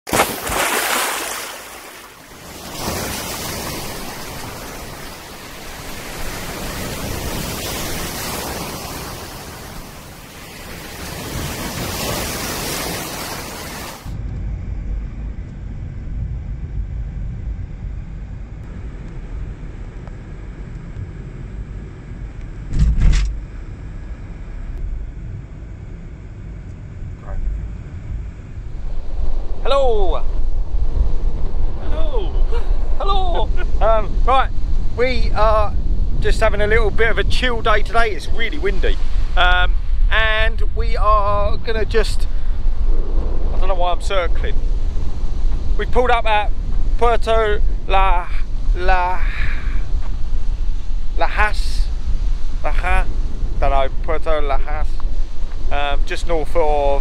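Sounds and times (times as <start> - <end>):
sea waves breaking on shore: 0.1 - 14.1, 37.6 - 40.5
wind rumble on microphone: 1.8 - 57.0
brief bump: 22.7 - 23.4.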